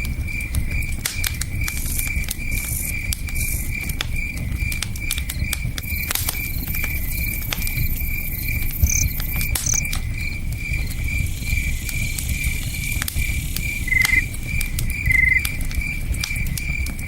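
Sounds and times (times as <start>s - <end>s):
campfire crackling and popping: 0.0s - 17.0s
crickets chirping: 0.3s - 17.0s.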